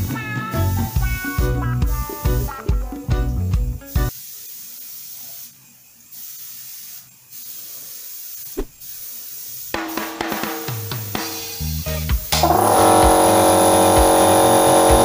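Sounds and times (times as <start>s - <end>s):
airbrush spraying hiss: 4.1s - 10.1s, 12.4s - 15.0s.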